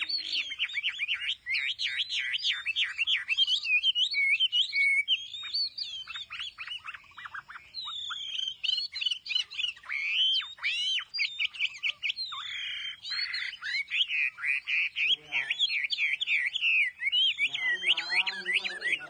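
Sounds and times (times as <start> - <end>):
bird singing whistled phrases: 0.0 - 19.0
harsh raspy bird notes: 0.0 - 19.0.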